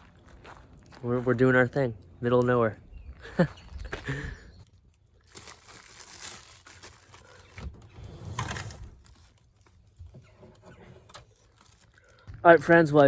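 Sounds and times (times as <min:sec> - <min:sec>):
rustling and crinkling handling noise: 0:04.6 - 0:13.0.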